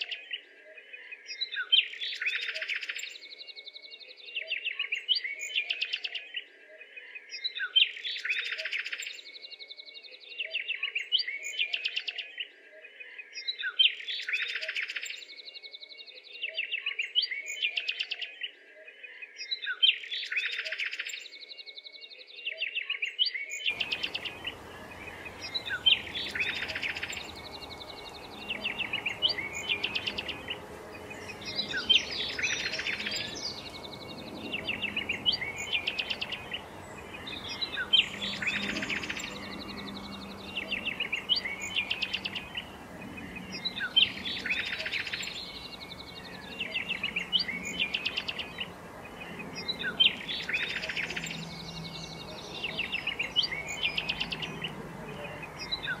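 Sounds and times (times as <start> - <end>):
bird trilling chirps: 23.7 - 56.0
faint steady hiss: 23.7 - 56.0.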